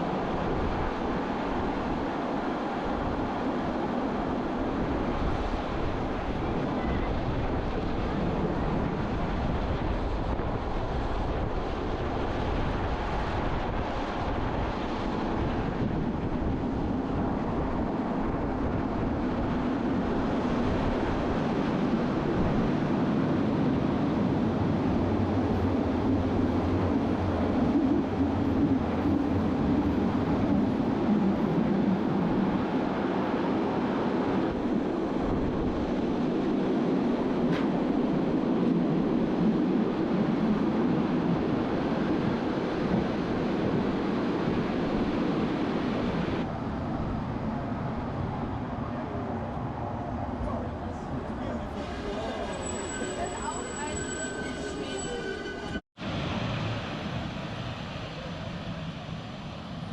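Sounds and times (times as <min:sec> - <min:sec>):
train rumbling on rails: 0:00.0 - 0:59.9
rushing air: 0:56.0 - 0:59.9.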